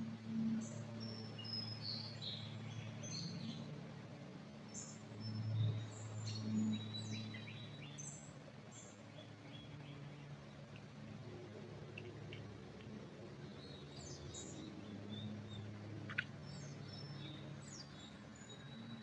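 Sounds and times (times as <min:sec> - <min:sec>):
low steady rumble: 0:00.0 - 0:19.0
songbirds chirping and whistling: 0:00.6 - 0:03.8, 0:04.4 - 0:10.9, 0:13.3 - 0:19.0.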